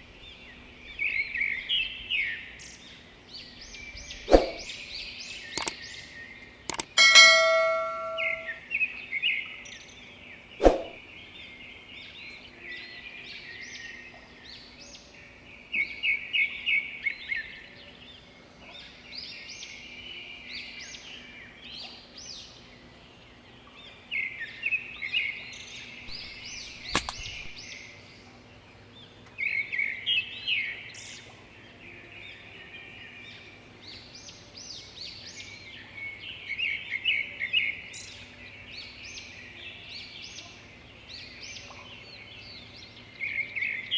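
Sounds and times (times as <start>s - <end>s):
sharp snaps: 6.7s - 7.0s, 26.1s - 27.6s.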